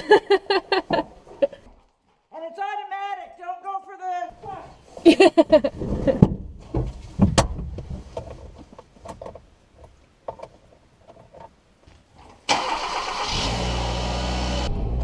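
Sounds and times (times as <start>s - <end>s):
car engine cranking: 12.5s - 15.0s.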